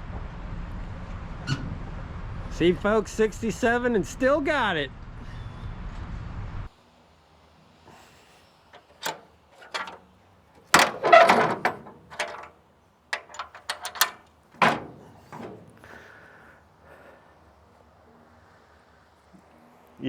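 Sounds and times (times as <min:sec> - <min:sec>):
steel stock rattling clatter: 0:08.7 - 0:16.1
metallic knocks and clanks: 0:08.8 - 0:12.6, 0:13.2 - 0:16.0.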